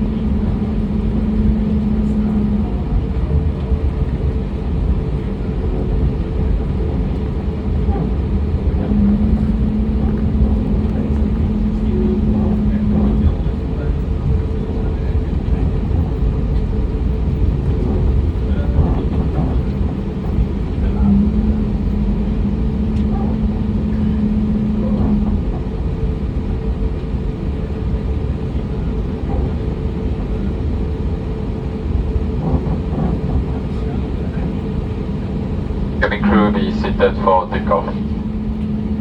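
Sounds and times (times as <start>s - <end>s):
steady hum: 0.0s - 15.6s, 16.8s - 27.0s, 35.0s - 39.0s
airliner cabin rumble: 0.0s - 39.0s.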